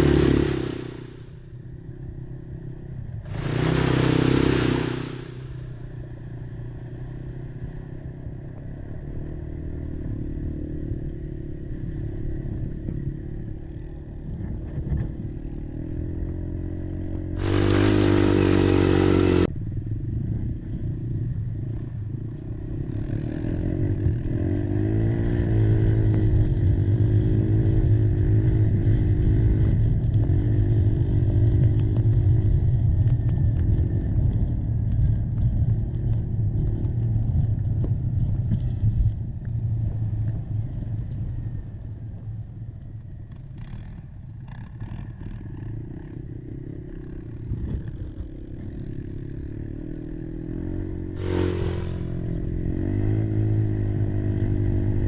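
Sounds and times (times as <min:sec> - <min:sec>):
quad engine revving: 0:00.0 - 0:19.5, 0:22.6 - 0:32.8, 0:43.3 - 0:55.0.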